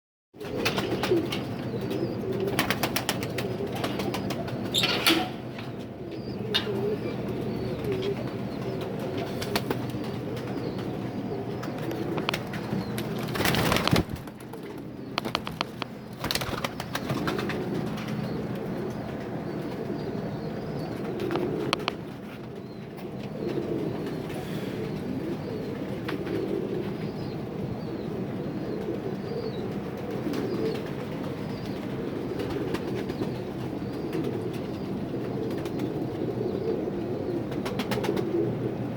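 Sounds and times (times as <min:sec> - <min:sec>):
pigeons cooing: 0:00.4 - 0:38.9
steady low hum: 0:00.4 - 0:38.9.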